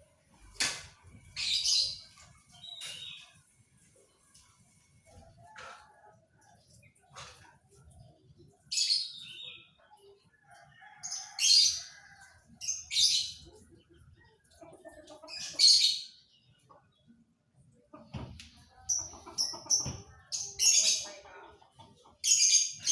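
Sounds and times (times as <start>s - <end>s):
canary chirping: 22.3s - 22.9s.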